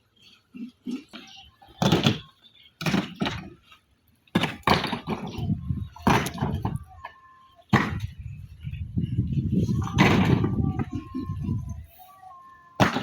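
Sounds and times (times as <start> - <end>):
hard knocks and thuds: 4.4 - 6.8, 7.7 - 8.2, 9.8 - 10.9.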